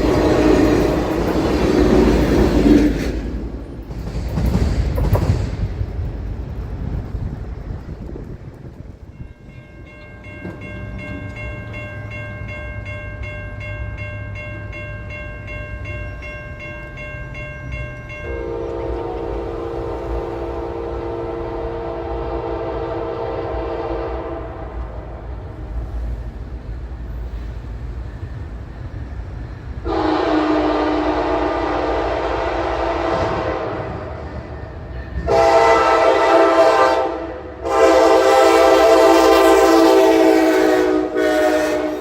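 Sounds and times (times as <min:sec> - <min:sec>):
locomotive rumble: 0:00.0 - 0:12.8
locomotive air horn blast: 0:18.3 - 0:24.8, 0:29.8 - 0:34.1, 0:35.2 - 0:42.0.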